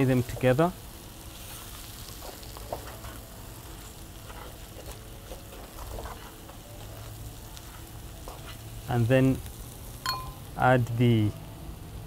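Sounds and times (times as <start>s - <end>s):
fish and peppers sizzling in oil: 0.0s - 12.0s
wooden spatula scraping and knocking: 4.2s - 6.6s.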